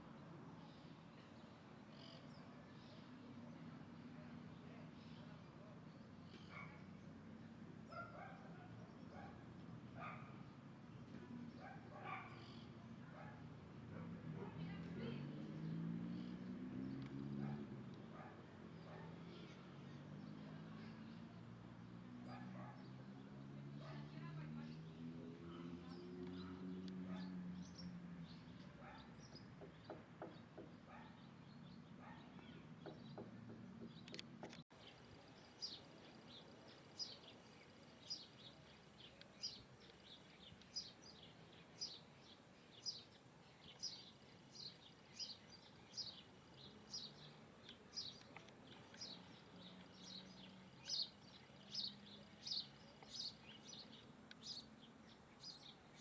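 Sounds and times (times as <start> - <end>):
bird chirping: 25.8 - 56.0.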